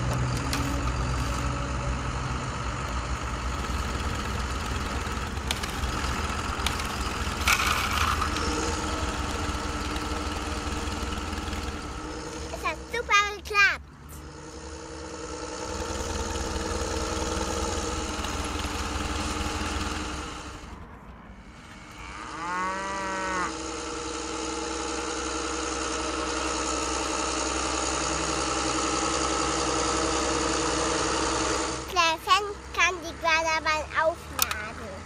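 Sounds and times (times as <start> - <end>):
toy vehicle engine drone: 0.0 - 20.8, 21.4 - 35.0
moo-like call: 21.7 - 23.7.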